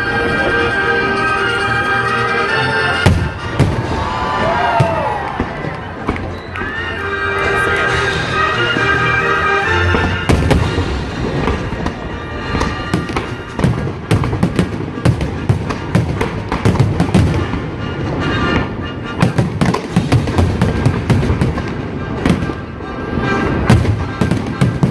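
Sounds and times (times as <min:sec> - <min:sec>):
music playing: 0:00.0 - 0:24.9
fireworks bangs and crackles: 0:03.0 - 0:24.9.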